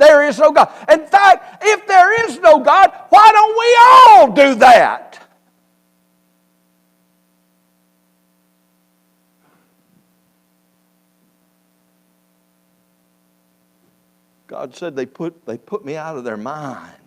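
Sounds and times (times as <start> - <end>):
faint electrical hum and hiss: 0.0 - 17.0.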